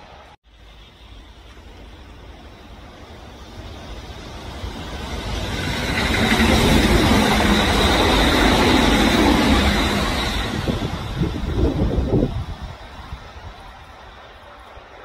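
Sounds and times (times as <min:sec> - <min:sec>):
electric train rumbling past: 0:00.0 - 0:15.0.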